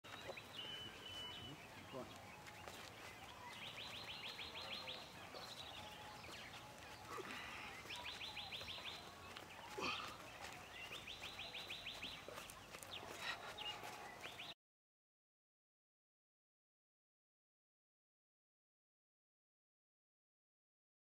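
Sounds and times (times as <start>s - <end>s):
faint outdoor background: 0.0s - 14.6s.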